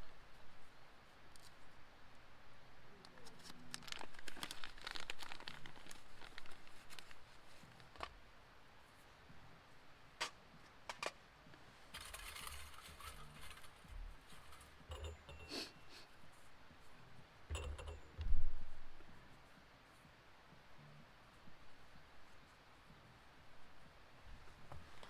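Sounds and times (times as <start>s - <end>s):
crinkling and rustling: 3.0s - 8.2s, 10.2s - 15.4s.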